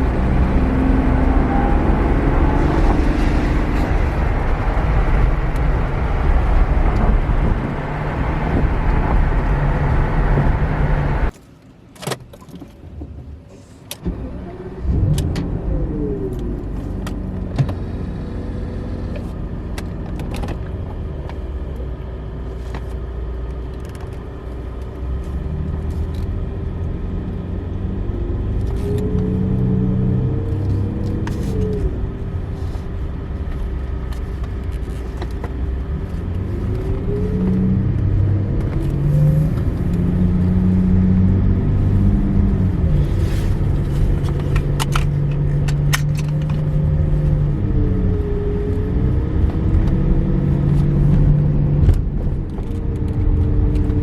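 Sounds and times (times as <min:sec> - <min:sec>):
engine revving: 0:00.0 - 0:11.3, 0:35.7 - 0:54.0.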